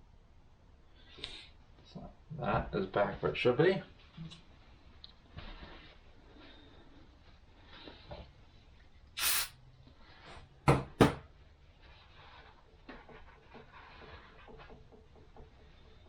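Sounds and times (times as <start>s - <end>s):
hissing rustle: 9.2s - 9.5s
sharp knocks on workbench: 10.7s - 11.2s
faint rubbing: 11.6s - 16.0s.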